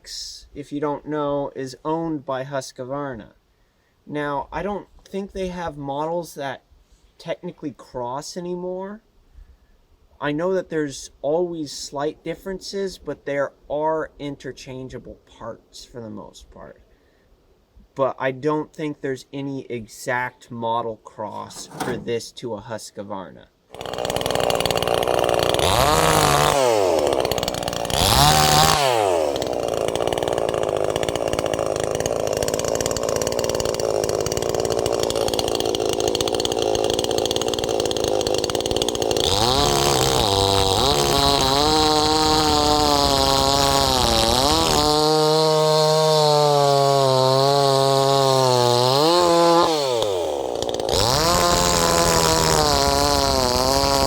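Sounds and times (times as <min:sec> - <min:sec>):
chainsaw revving and cutting: 0:21.4 - 0:22.2, 0:23.7 - 0:54.0.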